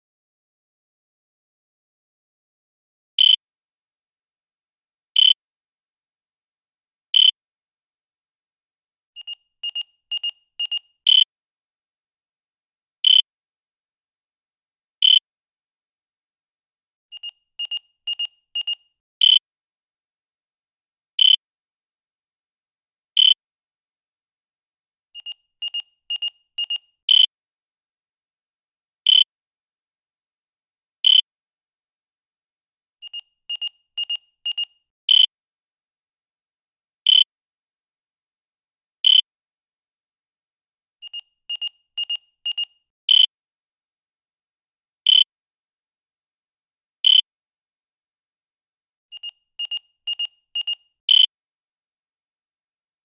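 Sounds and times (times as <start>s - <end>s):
short high timer beeps: 9.2s - 11.2s, 17.1s - 18.8s, 25.2s - 26.9s, 33.0s - 34.7s, 41.0s - 42.7s, 49.1s - 51.2s.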